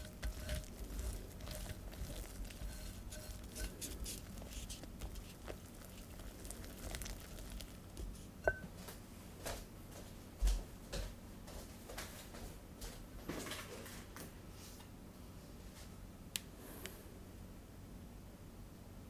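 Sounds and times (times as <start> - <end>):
utensil stirring thick batter: 0.0 - 8.6.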